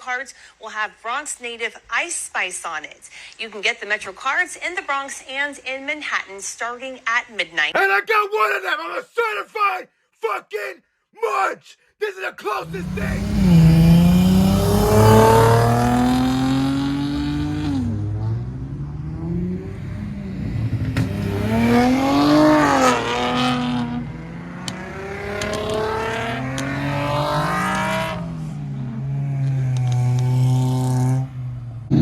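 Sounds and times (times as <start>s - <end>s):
car engines revving: 12.6s - 32.0s.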